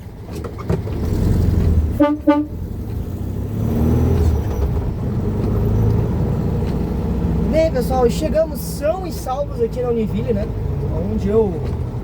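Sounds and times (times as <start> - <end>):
car engine running: 0.0 - 12.0
road noise: 0.0 - 12.0
car horn toots: 1.9 - 2.6.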